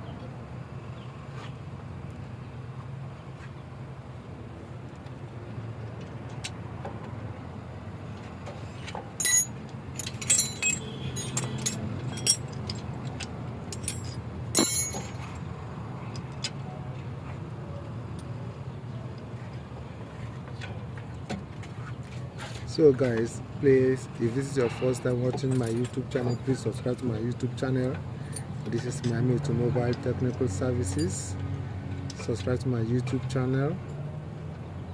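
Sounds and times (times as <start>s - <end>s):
metal tools clinking: 9.2s - 15.5s, 24.7s - 26.6s.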